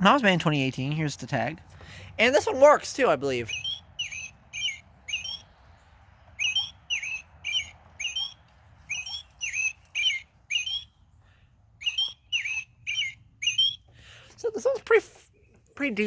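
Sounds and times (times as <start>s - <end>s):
toy playing robin chirps: 2.6s - 5.6s, 6.4s - 10.9s, 11.8s - 13.9s.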